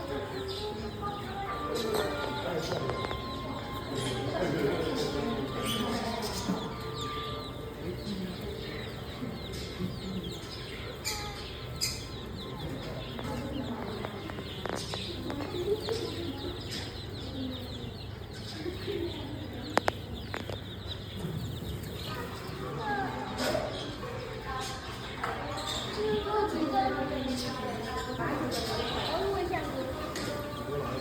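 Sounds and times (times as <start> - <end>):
faint distant voices: 0.0 - 31.0
small birds chirping: 0.0 - 31.0.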